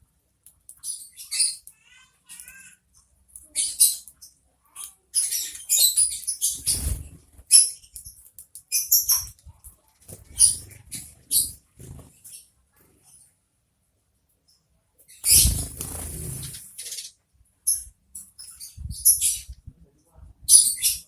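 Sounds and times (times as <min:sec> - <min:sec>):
sparrows chirping: 0:00.6 - 0:13.4, 0:14.4 - 0:19.6, 0:20.5 - 0:21.0
fluttering wings: 0:06.4 - 0:07.6, 0:15.2 - 0:16.9.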